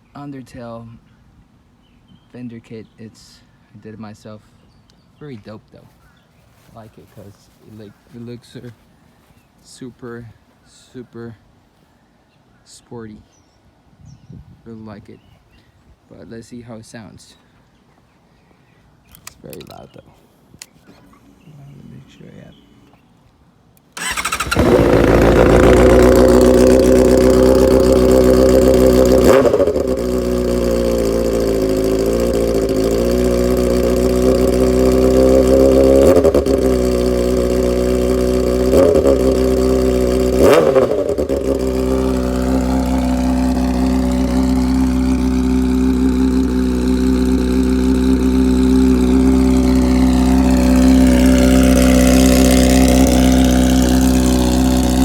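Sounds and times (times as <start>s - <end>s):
motorcycle engine starting and idling: 23.8s - 55.0s
engine revving blips: 24.0s - 55.0s.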